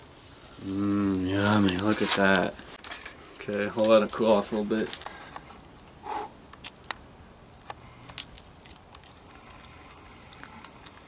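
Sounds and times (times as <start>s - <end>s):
person chewing: 7.8s - 11.0s.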